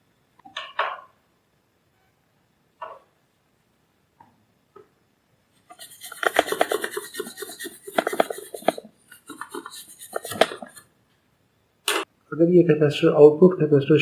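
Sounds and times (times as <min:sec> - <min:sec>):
scraping and rubbing: 0:05.7 - 0:10.8.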